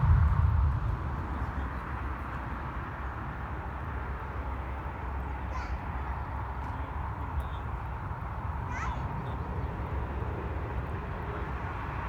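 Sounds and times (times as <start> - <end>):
distant jet engines: 0.0 - 7.1.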